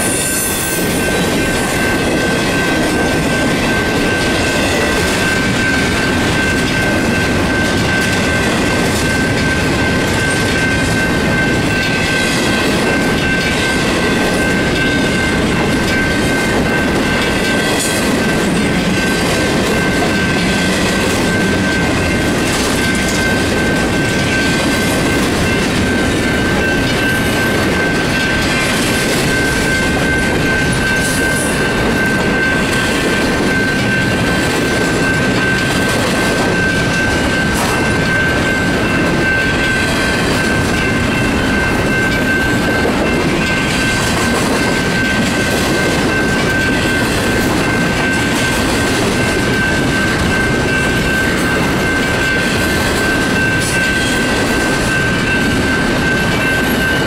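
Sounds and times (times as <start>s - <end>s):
freight train rumble: 0.0s - 57.0s
wheels clattering on rails: 0.0s - 57.0s.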